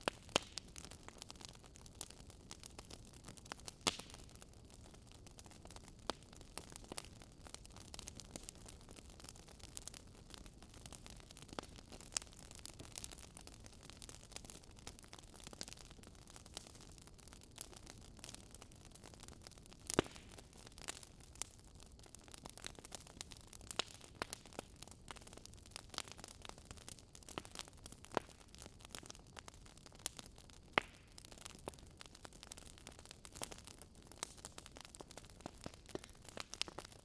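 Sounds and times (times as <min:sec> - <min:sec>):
fire pops and snaps: 0:00.0 - 0:37.0
wood fire crackling: 0:00.0 - 0:37.0.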